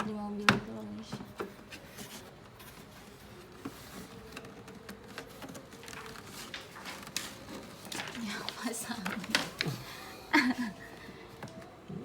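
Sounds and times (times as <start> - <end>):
plastic parts tapping and clicking: 3.5 - 8.2.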